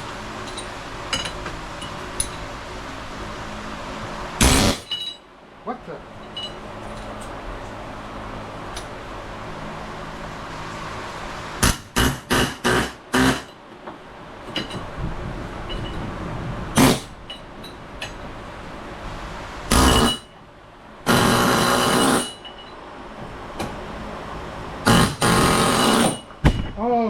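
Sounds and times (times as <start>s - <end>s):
loud bursts of noise: 4.0s - 5.0s, 10.4s - 13.6s, 16.3s - 17.2s, 19.2s - 20.3s, 21.0s - 22.4s, 24.8s - 26.3s
hammer striking metal: 4.4s - 5.2s, 11.6s - 13.6s, 19.7s - 20.3s.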